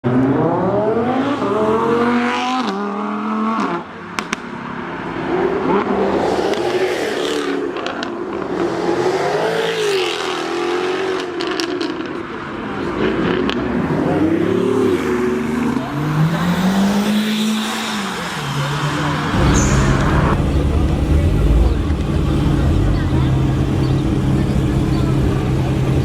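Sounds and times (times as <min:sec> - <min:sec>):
sports car engine revving: 0:13.0 - 0:26.0.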